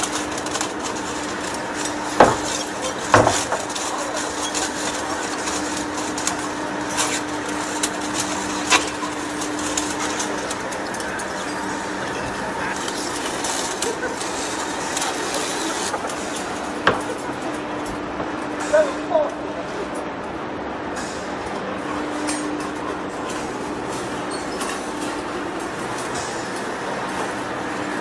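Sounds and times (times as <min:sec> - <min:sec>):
machine hum: 0:00.0 - 0:24.3
sharp knocks: 0:02.2 - 0:03.5.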